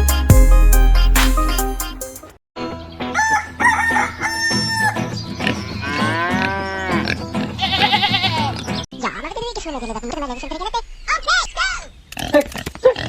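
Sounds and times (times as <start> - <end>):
rooster crowing: 3.1 - 5.1
farm animal calls: 3.2 - 13.0.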